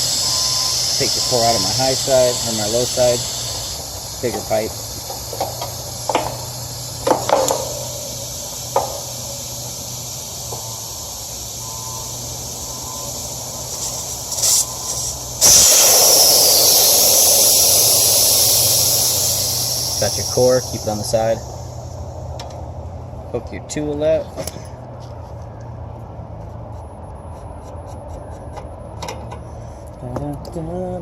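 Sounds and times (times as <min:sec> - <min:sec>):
tools clicking and knocking: 0:05.1 - 0:07.9.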